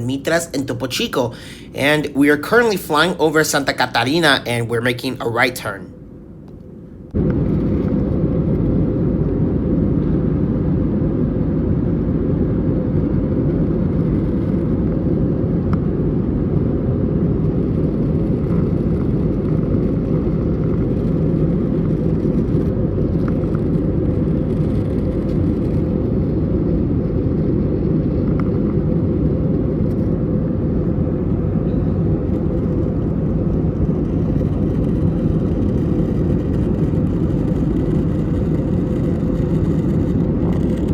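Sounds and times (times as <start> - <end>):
steady tone: 0.0 - 9.5
airplane cabin engine rush: 0.0 - 40.9.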